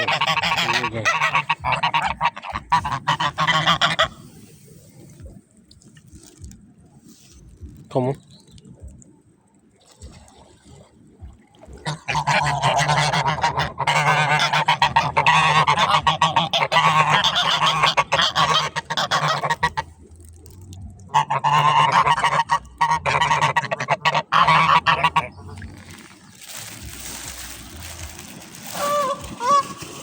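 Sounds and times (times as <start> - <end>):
geese honking: 0.0 - 4.5, 11.8 - 19.8, 21.1 - 25.7, 28.6 - 30.0.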